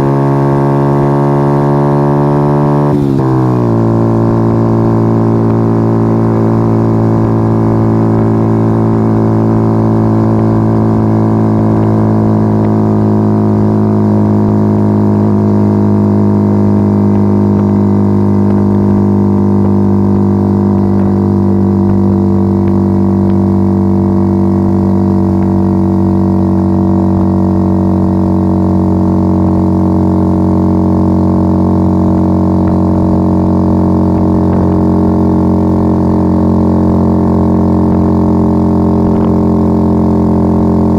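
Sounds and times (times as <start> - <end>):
motorcycle exhaust droning: 0.0 - 40.9.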